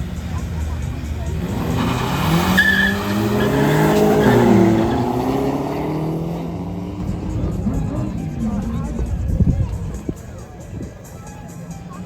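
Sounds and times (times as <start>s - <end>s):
racing engines accelerating: 0.0s - 12.0s.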